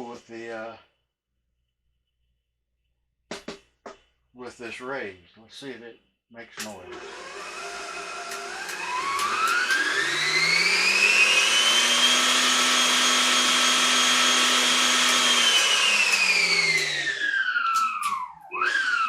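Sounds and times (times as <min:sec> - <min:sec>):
stand mixer motor whine: 0:06.8 - 0:19.0.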